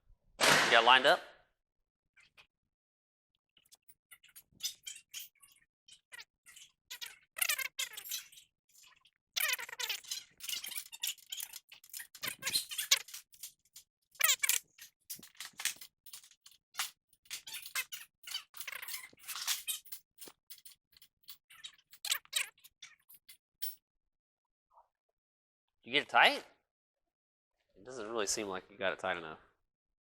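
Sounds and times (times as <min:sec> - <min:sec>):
wrench clicking and squeaking: 0:03.6 - 0:23.8.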